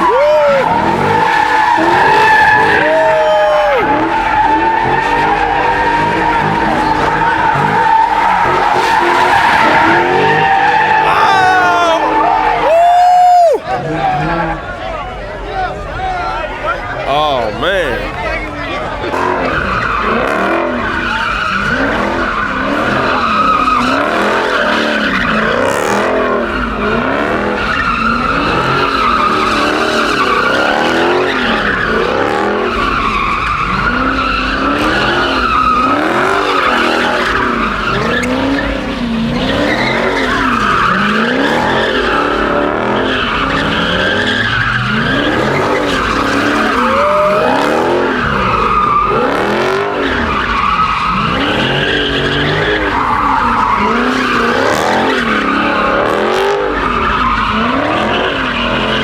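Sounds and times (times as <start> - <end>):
car engine revving: 0.0 - 12.7, 16.3 - 59.0
tyres squealing: 0.0 - 14.5, 26.5 - 56.0.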